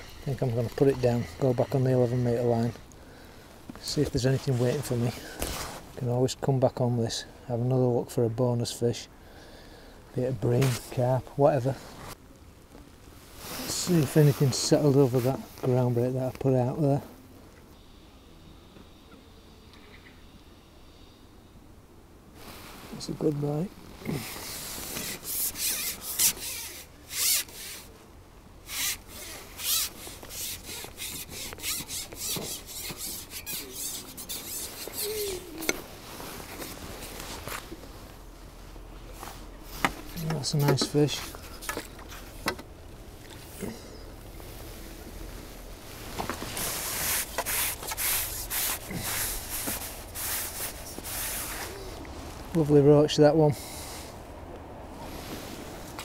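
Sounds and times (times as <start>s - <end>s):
rustling and rubbing of handling: 0.0s - 3.0s, 3.6s - 6.2s, 10.3s - 17.2s, 22.3s - 54.3s, 54.9s - 56.0s
fishing pole rubbing and rasping: 24.1s - 27.9s, 28.6s - 37.3s, 46.5s - 52.0s
short squeak: 31.1s - 35.8s.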